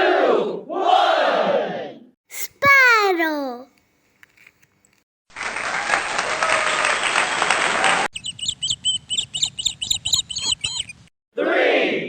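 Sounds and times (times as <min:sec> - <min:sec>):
parrot high chirps: 0:08.2 - 0:11.0.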